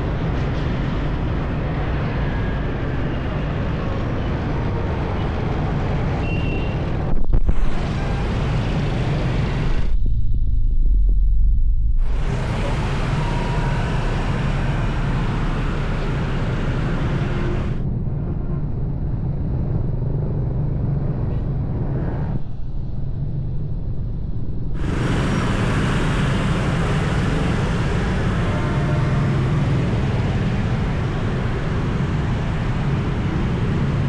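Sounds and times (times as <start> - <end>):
motorbike engine rumble: 12.0 - 17.8, 24.8 - 34.0
passing vehicles: 12.0 - 17.9, 24.8 - 34.0.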